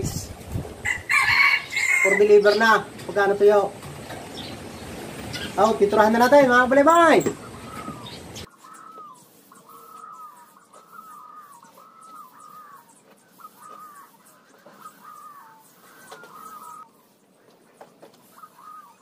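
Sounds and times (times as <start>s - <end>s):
bird calling with falling slide: 6.8s - 19.0s.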